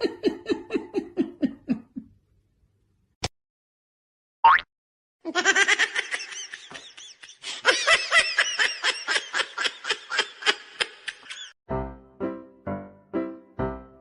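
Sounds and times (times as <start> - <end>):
high-pitched laughing: 0.0 - 2.1, 5.3 - 11.6.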